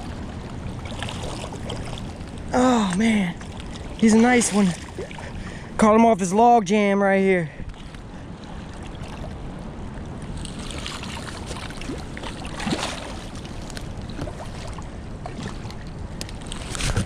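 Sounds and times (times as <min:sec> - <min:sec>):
river water flowing: 0:00.0 - 0:17.0
rustle: 0:16.2 - 0:17.0.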